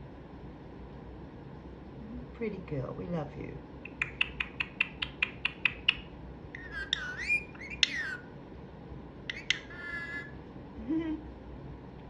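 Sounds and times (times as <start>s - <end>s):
parrot clicking: 3.8s - 7.7s
parrot warbling and whistling: 3.8s - 8.3s, 9.3s - 10.4s
parrot squawks: 3.9s - 8.3s, 9.3s - 10.4s.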